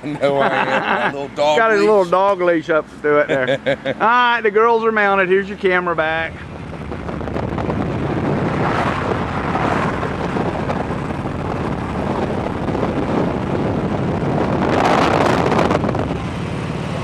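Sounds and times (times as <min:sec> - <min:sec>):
wind rushing over microphone: 0:05.6 - 0:17.0.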